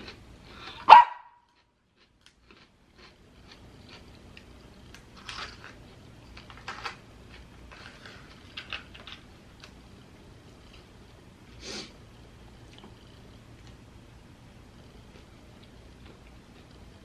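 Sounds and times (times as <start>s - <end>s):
person chewing: 0.0s - 9.7s, 15.1s - 16.8s.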